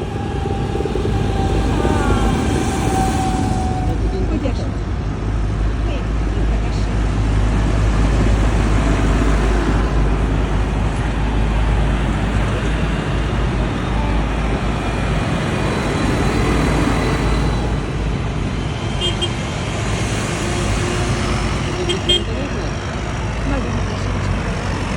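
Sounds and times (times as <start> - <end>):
heavy vehicle engines rumbling: 0.0 - 24.9
vehicle passing: 0.0 - 24.9.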